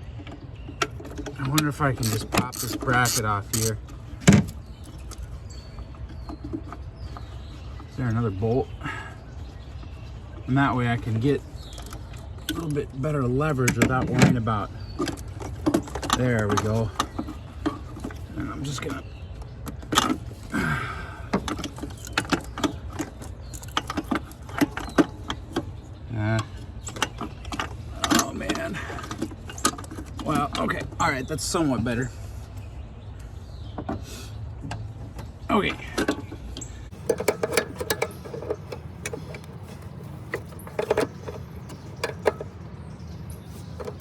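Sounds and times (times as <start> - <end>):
ratchet wrench clicking: 2.0 - 3.8, 36.9 - 42.5
metal scrape: 36.9 - 42.5
metal clinking: 36.9 - 42.6, 43.2 - 44.0.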